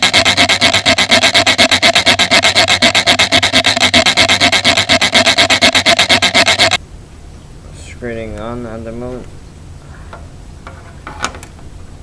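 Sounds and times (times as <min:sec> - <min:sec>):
rapid rasping strokes: 0:00.0 - 0:06.8.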